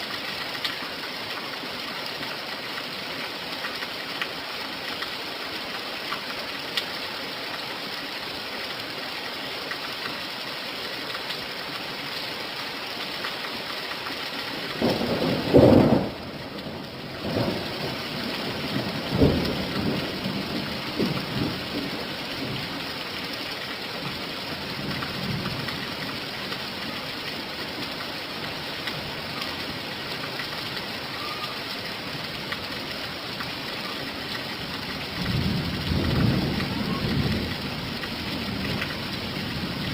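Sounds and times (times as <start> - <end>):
steady rain falling: 0.0 - 39.9
thunder rumbling: 14.8 - 22.6, 35.1 - 39.9.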